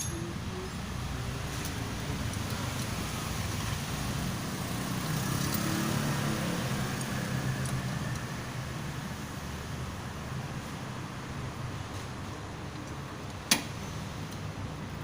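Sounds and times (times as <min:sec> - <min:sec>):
motor vehicle engine hum: 0:00.0 - 0:15.0.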